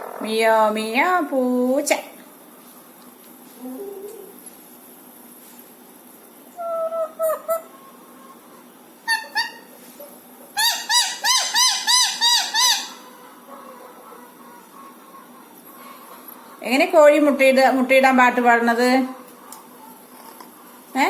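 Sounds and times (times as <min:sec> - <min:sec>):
parrot calling: 0:06.6 - 0:09.8, 0:10.5 - 0:16.6.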